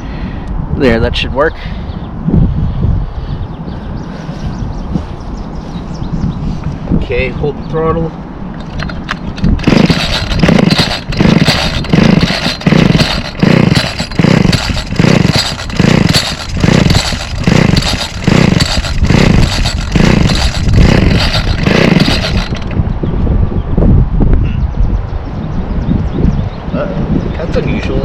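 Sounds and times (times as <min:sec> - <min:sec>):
recoil starter pulls: 0:08.6 - 0:22.8.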